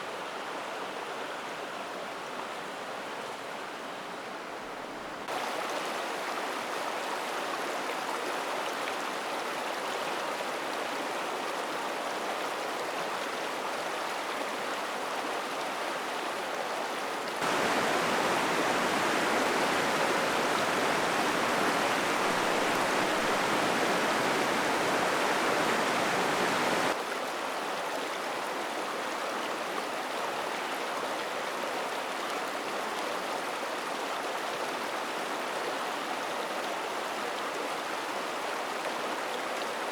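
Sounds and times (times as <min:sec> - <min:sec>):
mountain stream rushing over rocks: 0:17.3 - 0:27.7.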